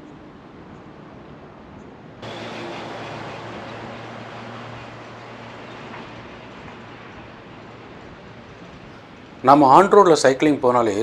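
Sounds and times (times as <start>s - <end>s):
road traffic rush: 0.0s - 10.2s
low engine hum: 2.2s - 9.4s.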